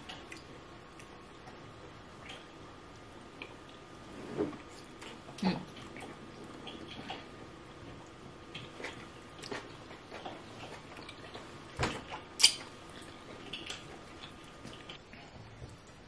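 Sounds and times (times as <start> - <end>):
soft wet chewing: 0.0 - 16.0
lip smacks: 12.1 - 15.0.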